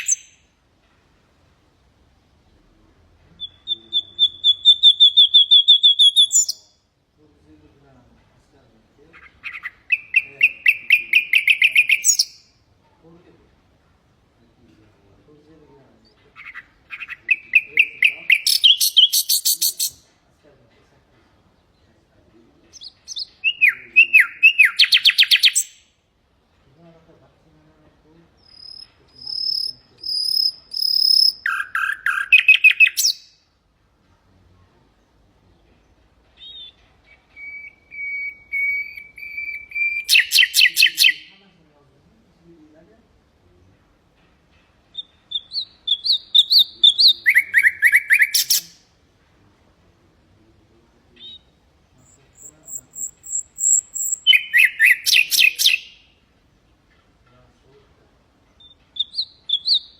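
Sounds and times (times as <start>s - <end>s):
nightingale singing: 0.0s - 0.6s, 2.5s - 6.9s, 9.1s - 12.6s, 15.9s - 20.1s, 22.6s - 26.0s, 28.3s - 33.5s, 35.0s - 41.4s, 44.8s - 49.0s, 51.1s - 56.3s, 58.5s - 59.9s.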